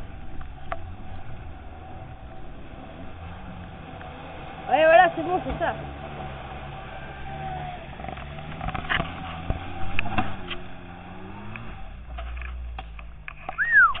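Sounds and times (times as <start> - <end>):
car engine working under load: 0.0 - 14.0.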